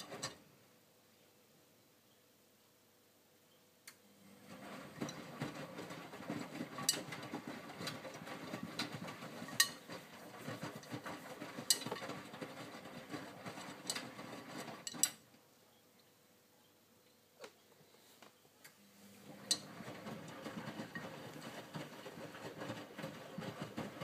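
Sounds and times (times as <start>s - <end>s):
wet laundry tumbling in drum: 4.4s - 15.1s, 19.3s - 24.0s.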